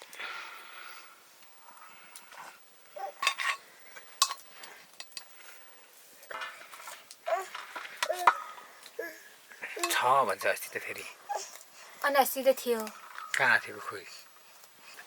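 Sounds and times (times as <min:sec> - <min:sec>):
metal utensils clinking on pots: 0:03.2 - 0:03.6, 0:04.2 - 0:04.4.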